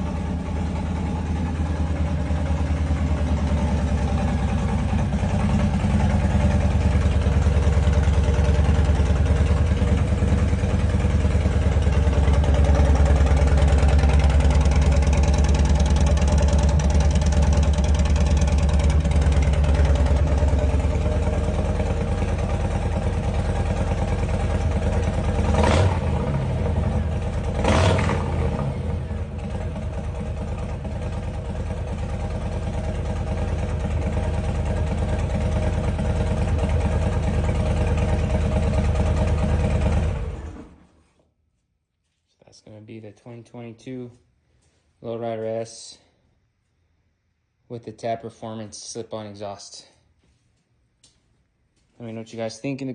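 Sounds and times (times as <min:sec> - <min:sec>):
motorcycle engine idling: 0:00.0 - 0:40.8.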